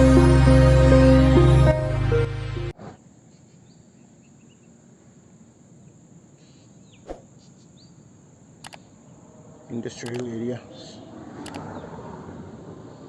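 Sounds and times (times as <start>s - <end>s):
background music: 0.0s - 2.7s
insect drone: 2.7s - 13.0s
single click: 8.6s - 8.8s, 10.0s - 10.3s, 11.4s - 11.7s.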